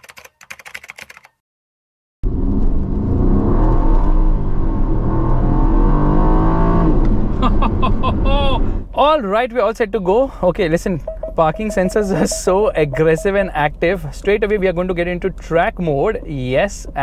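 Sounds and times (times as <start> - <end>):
car engine accelerating hard: 2.2 - 8.8.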